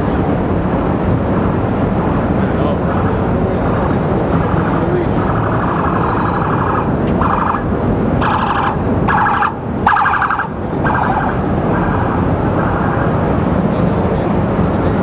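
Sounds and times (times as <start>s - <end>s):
steam pipe venting roar: 0.0s - 15.0s
police siren warbling: 2.5s - 13.6s.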